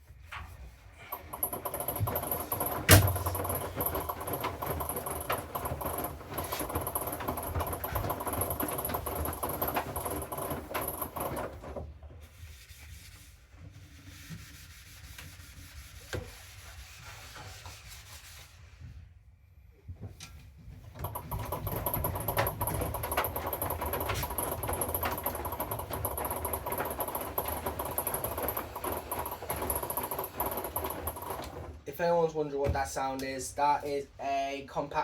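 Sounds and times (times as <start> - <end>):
laundry swishing in drum: 0.2 - 13.4, 21.0 - 31.9
washing machine motor whining: 1.0 - 12.0, 21.0 - 31.9.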